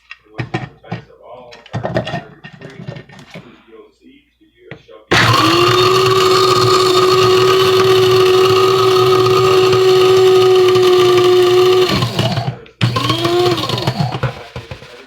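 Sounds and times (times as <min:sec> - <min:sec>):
electric coffee grinder running: 0:05.1 - 0:15.0.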